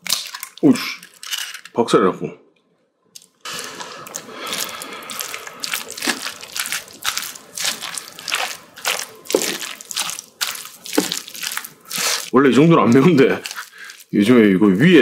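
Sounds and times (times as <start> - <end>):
mouth chewing food: 3.2 - 14.4.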